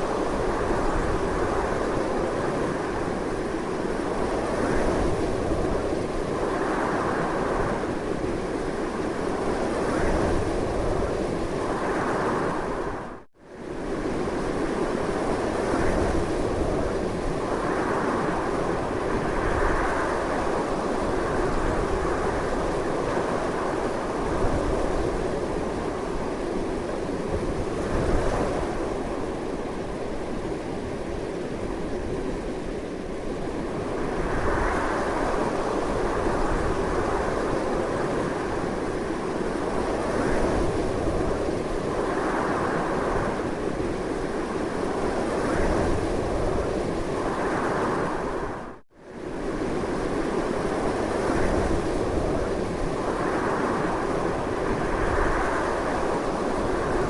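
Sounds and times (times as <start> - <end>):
strong wind gusting: 0.0 - 57.0.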